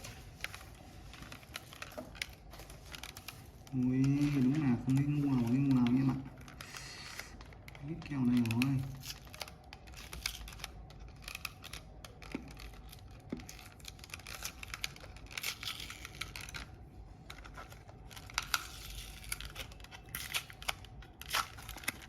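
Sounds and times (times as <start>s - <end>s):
plastic mouse clicks and scratches: 7.4s - 16.7s.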